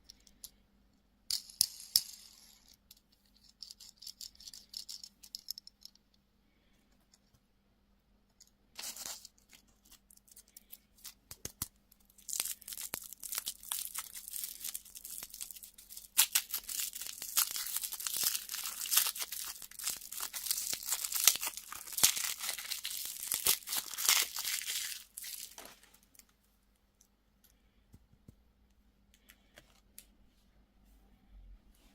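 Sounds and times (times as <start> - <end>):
candy wrapper crinkling and tearing: 8.8 - 26.3.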